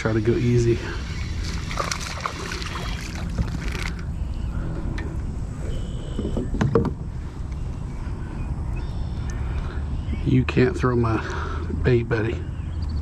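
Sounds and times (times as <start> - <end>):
low steady rumble: 0.0 - 13.0
fish splashing at the surface: 0.9 - 4.1.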